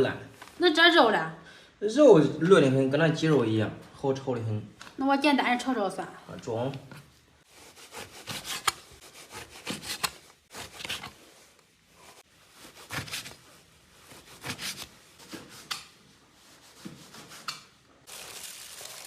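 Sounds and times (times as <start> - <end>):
knife cutting on wooden board: 7.6 - 11.2, 12.7 - 13.4, 14.2 - 15.9.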